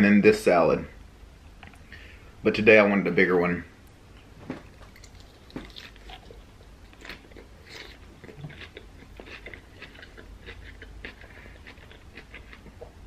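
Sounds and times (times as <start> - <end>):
crunchy chewing: 4.6 - 13.0.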